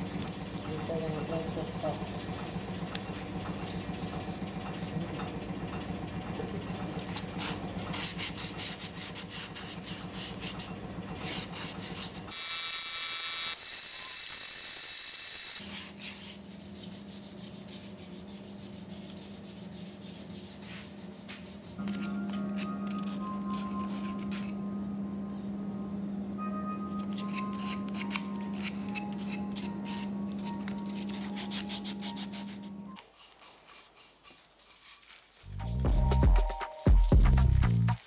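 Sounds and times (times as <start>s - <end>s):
sandpaper rubbing on wood: 0.0s - 5.0s, 7.2s - 12.3s, 15.6s - 21.8s, 30.9s - 35.8s.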